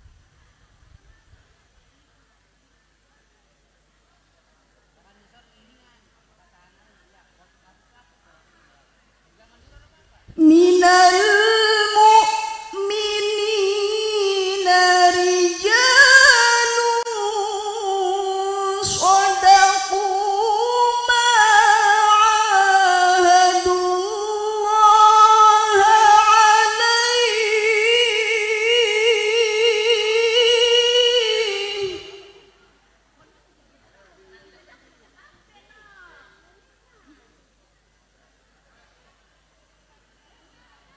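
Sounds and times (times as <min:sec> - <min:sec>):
woman chanting melodically: 0:10.3 - 0:32.7.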